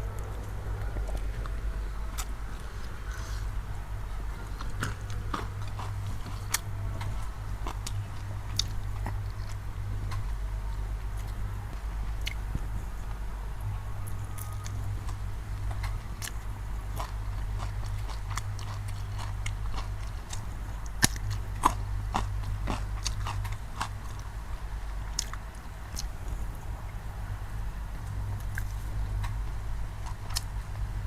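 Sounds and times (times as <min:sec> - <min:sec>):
low hum: 0:00.0 - 0:31.0
person chewing food: 0:00.1 - 0:10.4, 0:12.2 - 0:12.4, 0:14.3 - 0:24.3, 0:25.1 - 0:26.5, 0:28.1 - 0:30.8.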